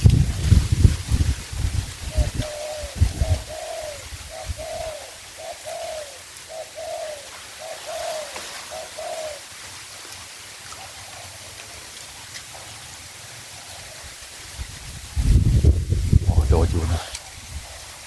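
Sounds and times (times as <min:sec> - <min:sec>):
dove cooing: 0:02.1 - 0:09.6.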